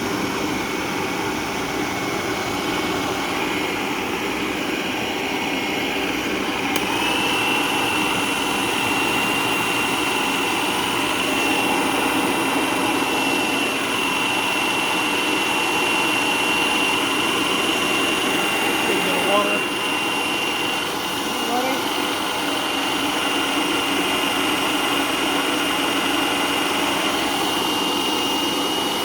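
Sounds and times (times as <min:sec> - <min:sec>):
food processor motor whining: 0:00.0 - 0:29.0
food processor switch click: 0:06.7 - 0:07.0.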